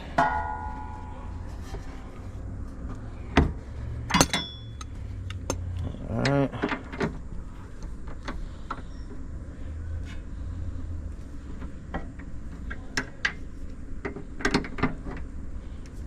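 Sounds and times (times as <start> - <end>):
low steady hum: 0.0 - 16.0
wrenches clicking and knocking: 4.0 - 7.2.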